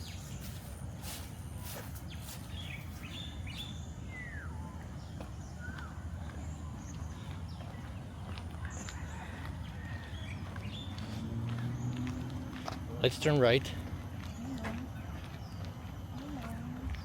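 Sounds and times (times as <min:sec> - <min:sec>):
footsteps: 0:00.0 - 0:03.1
birds chirping and whistling: 0:00.0 - 0:08.0.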